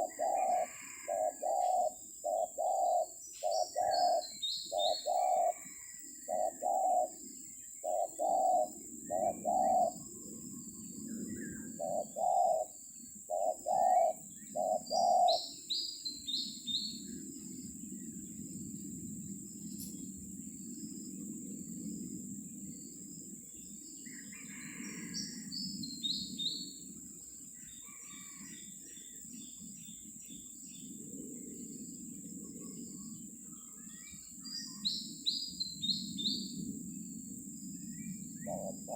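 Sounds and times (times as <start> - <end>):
small birds chirping: 0.0 - 5.6, 6.3 - 18.5
dove cooing: 0.0 - 15.5, 38.2 - 38.9.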